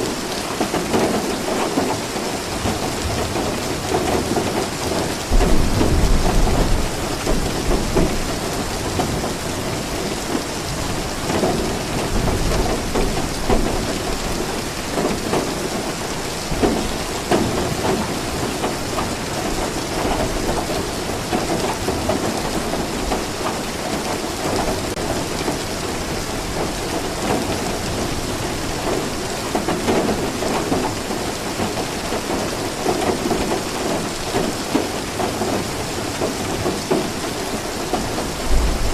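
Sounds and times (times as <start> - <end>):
heavy rainfall: 0.0 - 38.9
thunder rumble: 5.0 - 9.4, 38.4 - 38.9.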